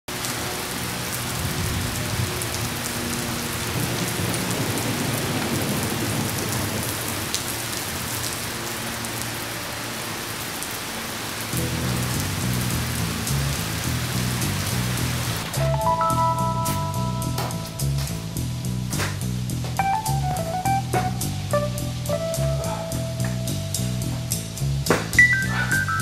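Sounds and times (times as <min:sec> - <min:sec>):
heavy rain hissing: 0:00.1 - 0:16.0, 0:16.7 - 0:26.0
thunder rumble: 0:00.8 - 0:08.8
faint music with low notes: 0:11.6 - 0:26.0.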